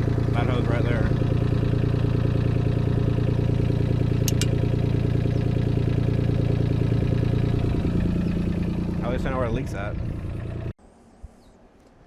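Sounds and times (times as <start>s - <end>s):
excavator diesel engine running: 0.0s - 10.8s
sharp clicks: 4.2s - 4.6s.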